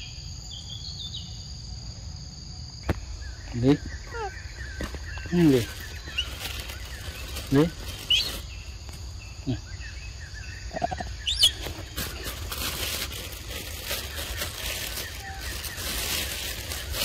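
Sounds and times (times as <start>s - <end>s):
high bird chirp: 2.9s - 12.5s.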